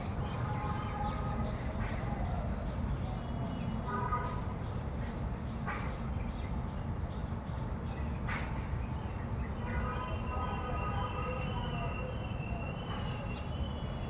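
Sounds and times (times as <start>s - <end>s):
high-pitched insect drone: 8.9s - 14.0s.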